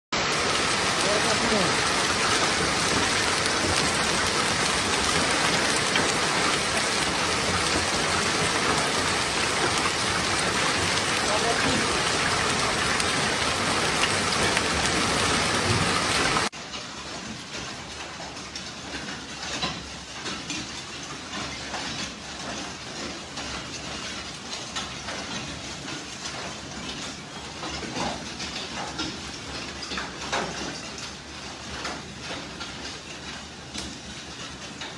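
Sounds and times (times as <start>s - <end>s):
heavy rain: 0.2s - 21.0s
hailstones clattering: 0.2s - 34.9s.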